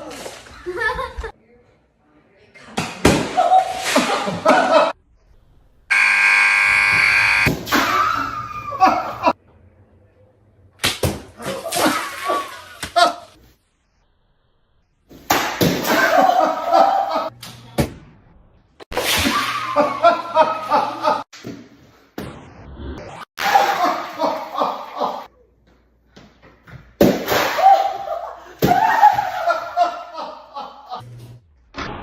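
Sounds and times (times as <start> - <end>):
people laughing: 0.5 - 1.3, 3.6 - 5.0, 8.1 - 9.4, 15.9 - 17.3, 19.6 - 21.3, 23.6 - 25.3, 27.7 - 31.0.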